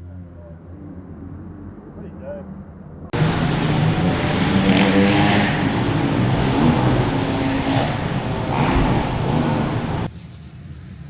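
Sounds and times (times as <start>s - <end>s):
motocross bike engine revving: 3.2s - 10.1s
noisy rush: 3.2s - 10.1s.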